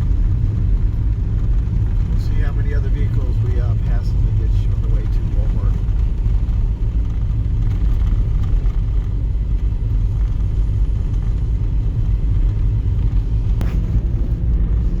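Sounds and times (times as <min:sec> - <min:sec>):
car driving on snowy road: 0:00.0 - 0:15.0.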